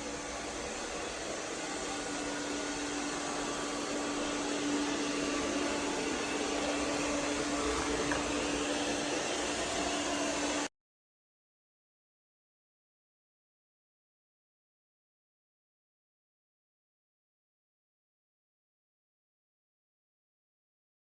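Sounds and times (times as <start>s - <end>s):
robot vacuum whirring: 0.0s - 10.7s.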